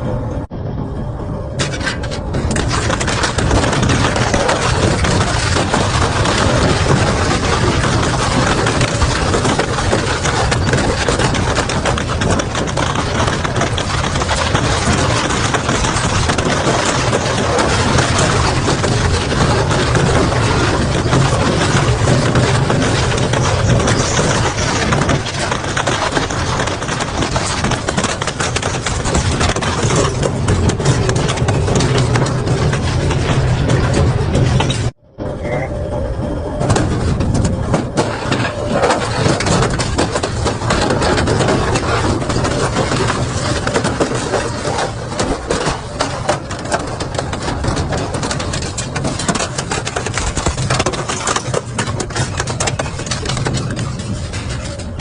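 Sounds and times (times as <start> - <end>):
metal cracking and snapping: 1.6 - 35.0, 36.6 - 55.0.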